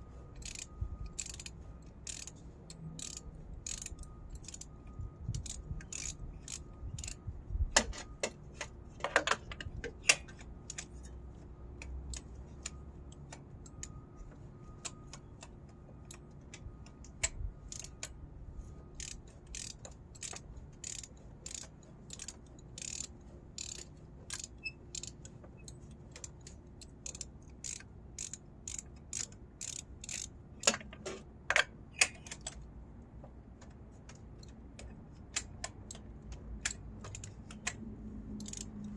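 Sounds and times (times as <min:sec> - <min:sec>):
hand ratchet clicking: 0:00.4 - 0:09.3, 0:12.1 - 0:12.8, 0:17.0 - 0:18.2, 0:19.0 - 0:30.9, 0:34.1 - 0:38.9.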